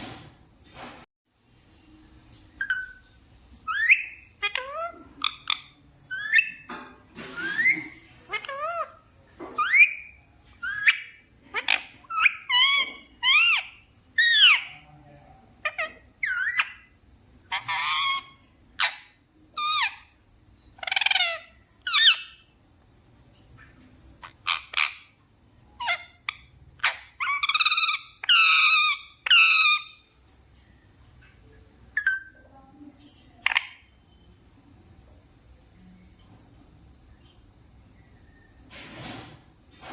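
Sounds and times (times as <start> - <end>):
parrot squawking and whistling: 2.6 - 3.0, 3.6 - 6.7, 7.3 - 14.7, 25.8 - 30.0.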